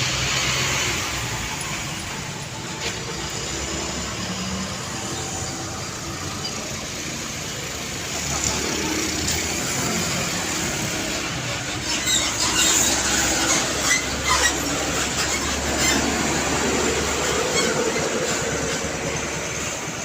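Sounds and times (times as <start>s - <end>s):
high squeal: 11.5s - 20.0s.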